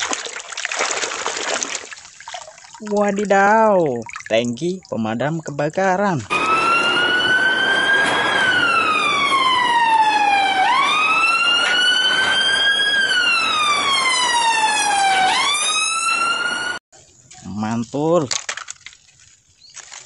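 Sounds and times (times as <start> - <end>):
toy siren wailing: 6.3 - 16.8.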